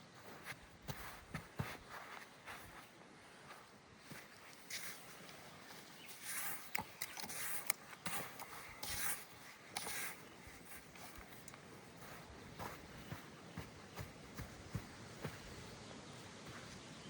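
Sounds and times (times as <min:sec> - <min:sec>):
rustling in dry vegetation: 0:00.0 - 0:17.0
sharp clicks: 0:06.4 - 0:09.0.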